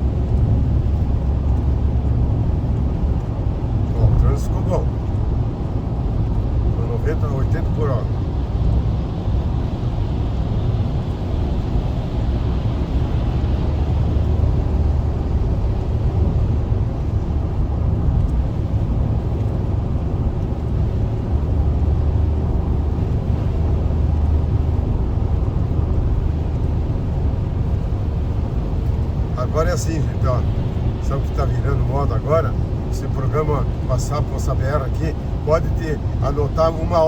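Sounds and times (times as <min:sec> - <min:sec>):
car road and engine noise: 0:00.0 - 0:37.0.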